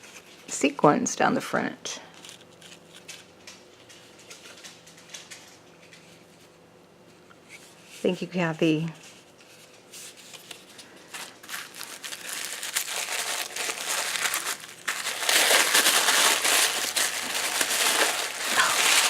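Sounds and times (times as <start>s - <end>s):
packaging crinkling: 2.1s - 6.3s, 9.0s - 19.0s.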